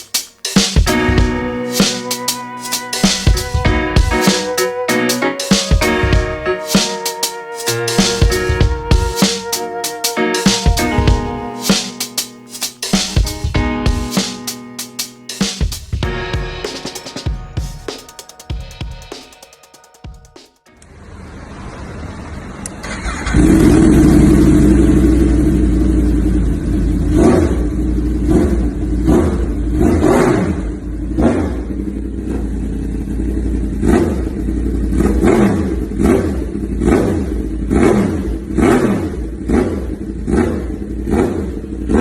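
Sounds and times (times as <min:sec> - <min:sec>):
motorcycle engine revving: 0:22.9 - 0:42.0.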